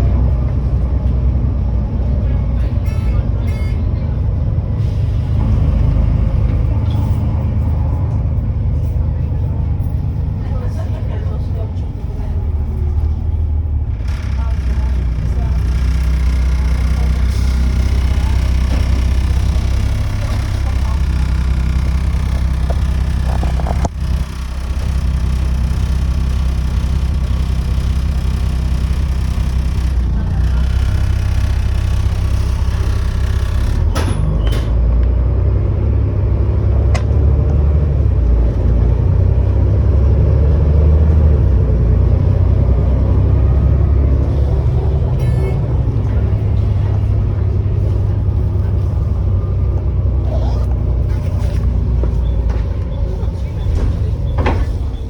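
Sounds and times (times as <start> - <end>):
bus diesel engine drone: 0.0 - 55.0
rattles: 13.9 - 34.8.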